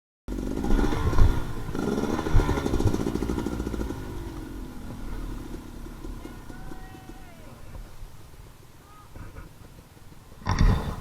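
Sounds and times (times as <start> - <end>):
dirt bike engine revving: 0.3 - 8.4.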